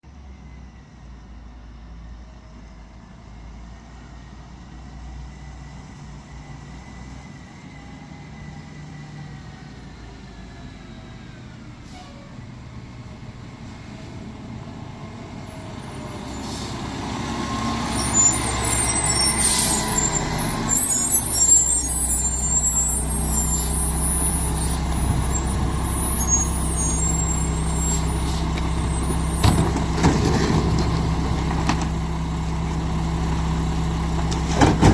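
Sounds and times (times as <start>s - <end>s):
garbage truck diesel engine: 0.0s - 34.9s
air brake hiss: 11.8s - 12.4s, 16.3s - 17.0s
high squealing: 15.8s - 30.9s.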